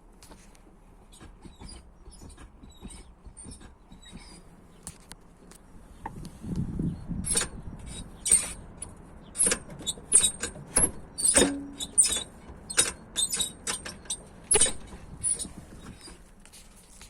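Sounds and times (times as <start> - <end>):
gearshift lever squeaking: 1.1 - 4.8, 7.2 - 16.4.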